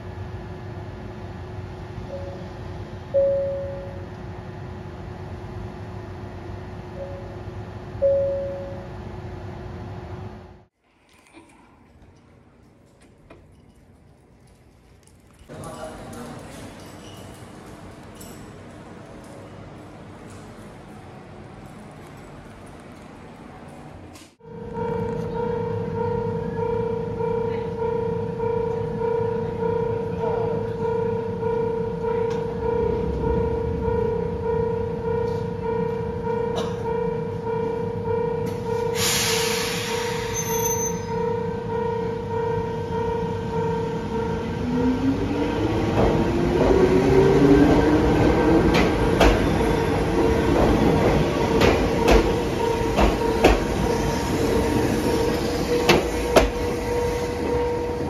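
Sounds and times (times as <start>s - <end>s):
air release hiss: 39.0s - 40.4s.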